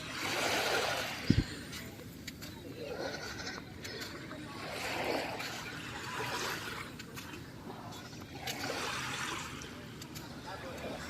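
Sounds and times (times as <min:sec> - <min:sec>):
small waves washing on beach: 0:00.0 - 0:11.0.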